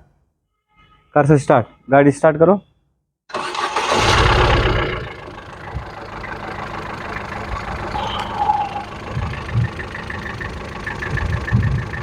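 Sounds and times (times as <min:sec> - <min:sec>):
car engine starting and idling: 0:03.3 - 0:12.0.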